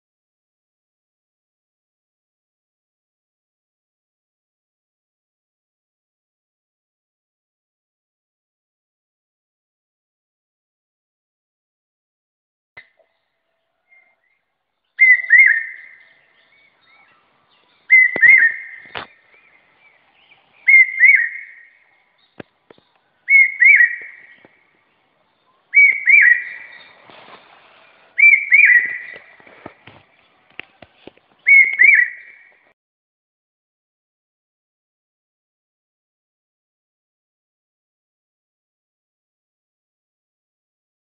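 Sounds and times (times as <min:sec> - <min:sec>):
bird whistling two-note call: 0:15.0 - 0:16.2, 0:17.9 - 0:19.0, 0:20.6 - 0:21.8, 0:23.3 - 0:24.4, 0:25.7 - 0:26.9, 0:28.2 - 0:29.3, 0:31.5 - 0:32.5.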